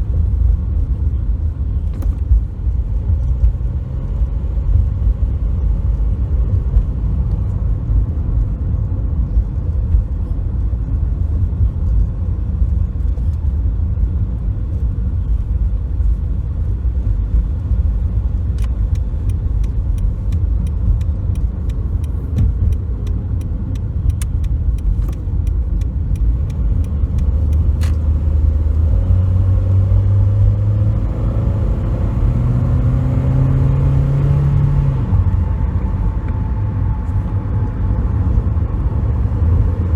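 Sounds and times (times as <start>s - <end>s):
car engine rumble: 0.0s - 39.9s
road noise: 0.0s - 39.9s
regular ticking: 18.6s - 28.2s.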